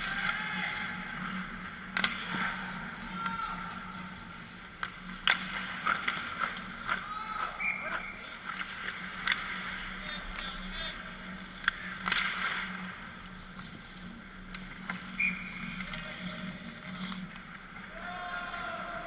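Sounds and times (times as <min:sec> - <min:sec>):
players shouting: 0:00.0 - 0:01.0, 0:17.9 - 0:19.0
stick hitting puck: 0:01.9 - 0:02.6, 0:04.7 - 0:07.1, 0:08.5 - 0:09.6, 0:11.6 - 0:12.8.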